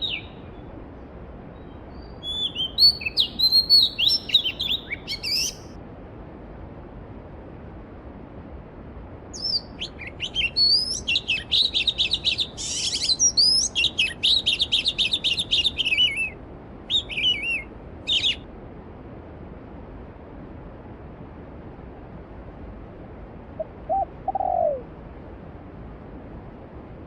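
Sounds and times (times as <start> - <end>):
songbird warbling: 0.0 - 0.6, 2.0 - 5.7, 9.4 - 16.3, 16.9 - 18.4, 23.6 - 24.8.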